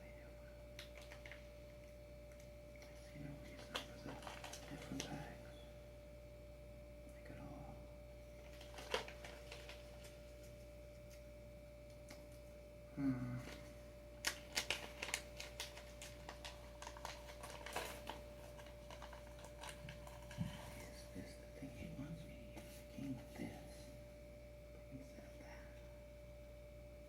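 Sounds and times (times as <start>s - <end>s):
low hum of a voice: 0.0s - 1.4s, 2.6s - 9.1s, 12.8s - 13.9s, 20.2s - 26.3s
faint steady hum: 0.0s - 27.0s.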